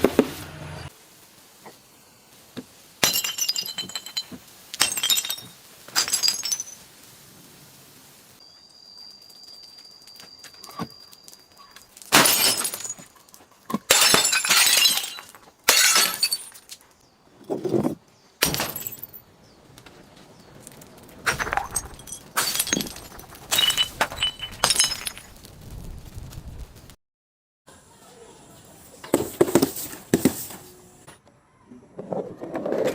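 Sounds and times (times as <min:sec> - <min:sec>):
glass bottles shattering: 0:03.0 - 0:06.9, 0:10.1 - 0:16.8, 0:18.4 - 0:19.2, 0:21.3 - 0:25.3
glass fragments tinkling: 0:03.0 - 0:07.0, 0:08.4 - 0:16.8, 0:18.4 - 0:19.2, 0:21.3 - 0:25.4.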